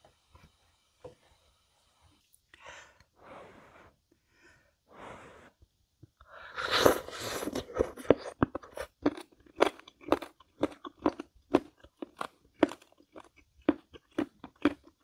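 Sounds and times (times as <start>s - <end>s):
person chewing crunchy food: 6.6s - 15.0s.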